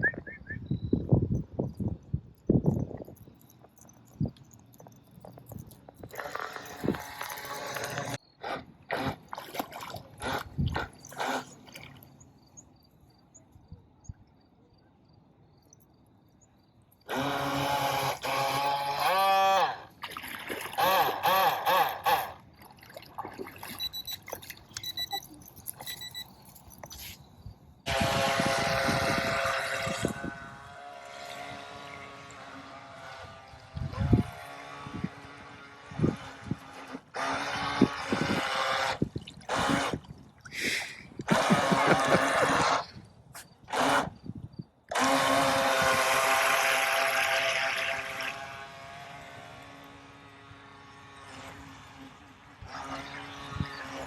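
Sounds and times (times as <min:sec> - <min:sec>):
short electronic beeps: 0:00.0 - 0:01.2, 0:23.7 - 0:26.6
small motor running: 0:03.7 - 0:09.3, 0:10.2 - 0:11.6, 0:17.1 - 0:19.9, 0:20.8 - 0:22.4, 0:27.9 - 0:40.0, 0:41.3 - 0:43.0, 0:43.7 - 0:44.2, 0:44.9 - 0:54.0.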